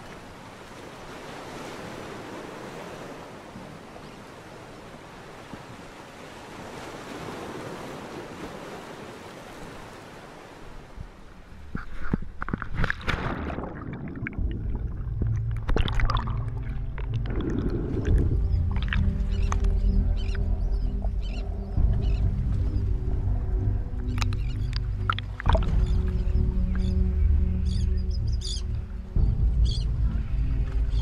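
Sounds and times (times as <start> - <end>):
waves: 0.0 - 31.0
wind: 0.0 - 31.0
deep rumbling sound: 13.3 - 31.0.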